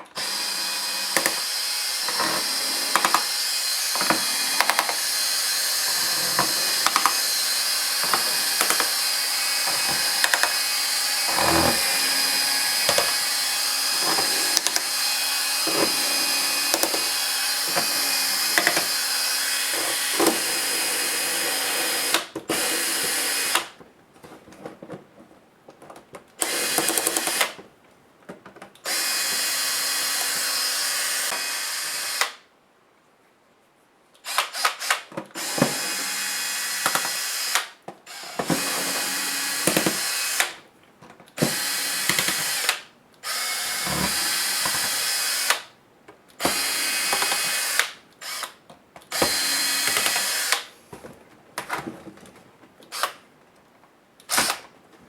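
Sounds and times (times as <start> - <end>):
electric screwdriver running: 0.2 - 23.6
sharp clicks of screws: 1.1 - 9.1, 9.7 - 10.6, 13.9 - 14.9, 16.6 - 17.9, 34.2 - 35.1, 36.8 - 38.4, 46.4 - 50.7, 52.8 - 53.2, 54.2 - 54.7.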